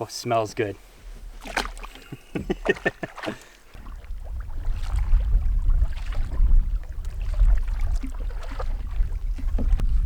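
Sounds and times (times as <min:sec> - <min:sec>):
wind buffeting microphone: 0:03.8 - 0:10.0.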